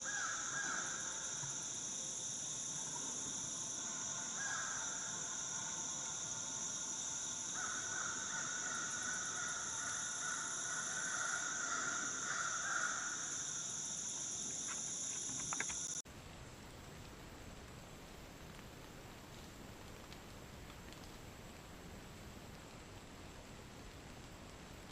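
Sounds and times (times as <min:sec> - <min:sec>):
crows cawing: 0:00.0 - 0:01.0, 0:04.4 - 0:05.1, 0:07.6 - 0:13.3
high-pitched insect chorus: 0:00.0 - 0:16.0
clicks: 0:14.7 - 0:16.0.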